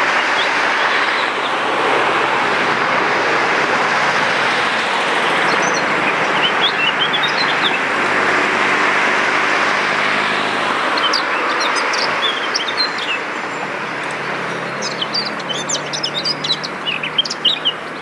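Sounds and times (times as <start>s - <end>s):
steady rushing noise: 0.0s - 16.2s
small birds chirping: 4.8s - 7.9s, 10.7s - 18.0s.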